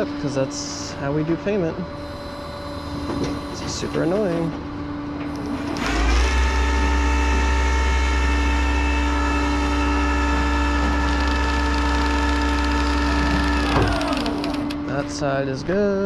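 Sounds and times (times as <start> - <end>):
hydraulic system whining: 0.0 - 15.3.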